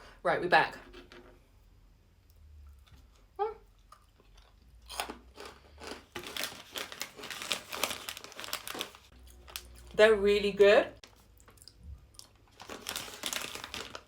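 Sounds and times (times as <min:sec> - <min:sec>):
crunchy snacks being chewed: 0:02.7 - 0:10.0, 0:11.1 - 0:14.0.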